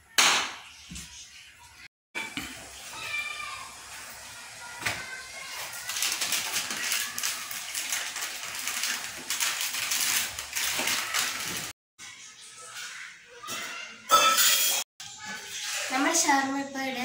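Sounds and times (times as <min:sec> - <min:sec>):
paper wrapper crinkling: 0:05.5 - 0:11.7.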